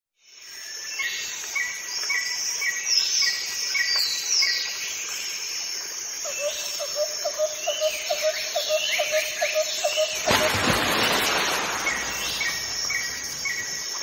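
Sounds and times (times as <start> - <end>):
high insect chirring: 8.5 - 14.0
falling whistled bird calls: 9.8 - 14.0.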